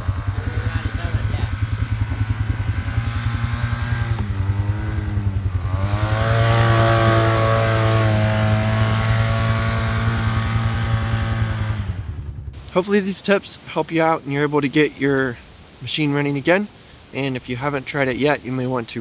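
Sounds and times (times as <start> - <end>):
off-road vehicle engine revving: 0.0 - 12.8.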